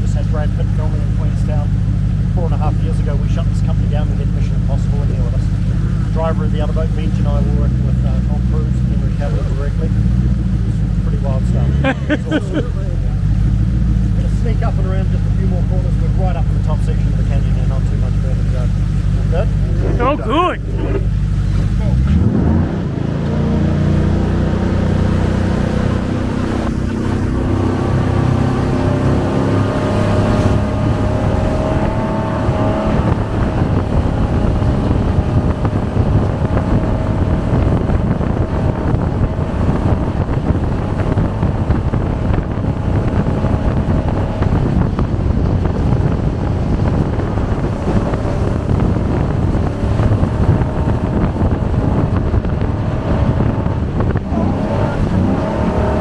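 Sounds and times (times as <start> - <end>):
jet boat engine running: 14.8 - 56.0
rush of water and wind: 19.6 - 56.0.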